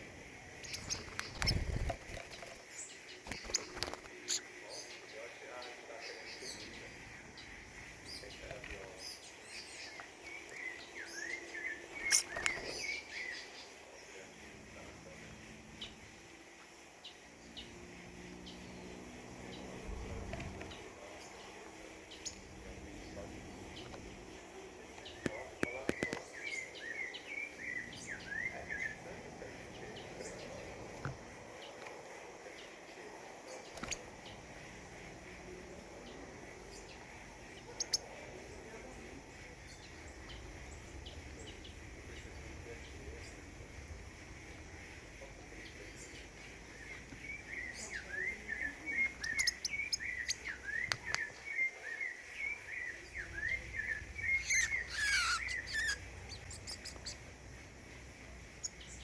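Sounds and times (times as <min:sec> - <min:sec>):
insects hissing: 0:00.0 - 0:59.0
songbirds chirping and whistling: 0:00.0 - 0:59.0
steady ambient background: 0:00.0 - 0:59.0.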